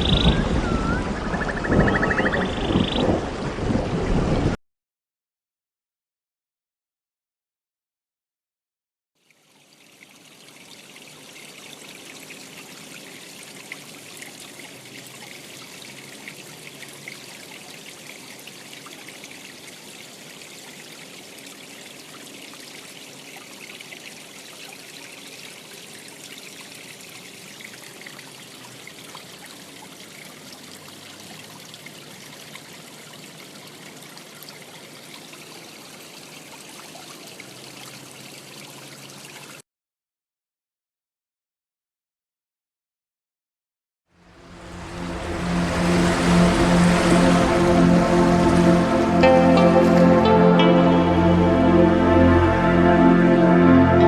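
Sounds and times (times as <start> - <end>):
stream trickling: 0.0 - 4.1, 9.2 - 39.6, 44.2 - 52.0.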